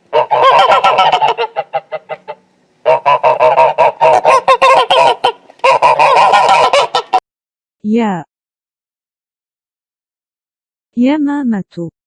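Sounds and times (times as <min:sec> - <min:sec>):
geese honking: 0:00.0 - 0:07.2.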